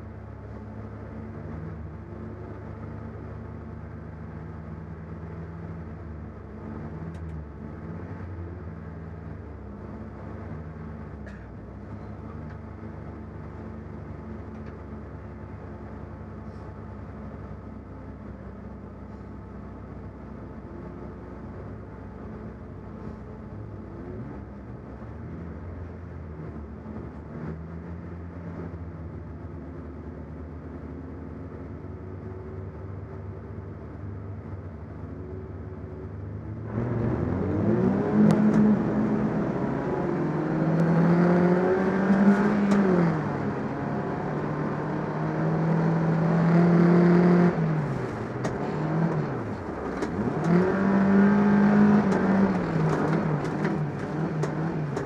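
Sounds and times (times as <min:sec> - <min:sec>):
race car engine revving: 0:36.6 - 0:55.0.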